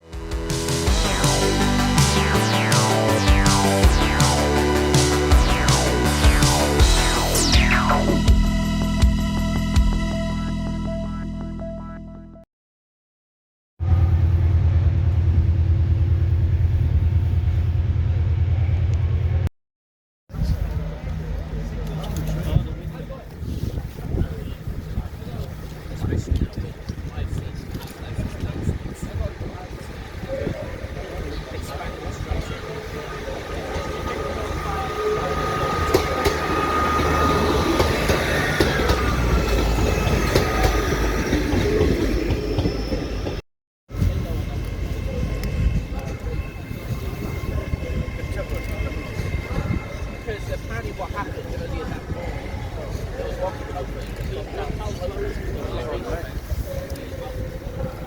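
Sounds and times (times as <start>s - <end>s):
train rumbling: 13.8s - 19.5s, 20.3s - 58.0s.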